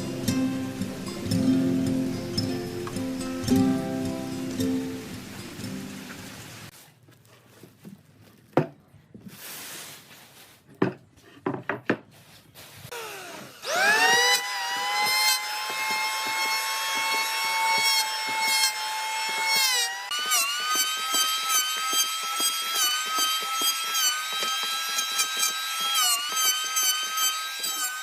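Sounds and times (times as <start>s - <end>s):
power tool motor whining: 12.9s - 28.0s.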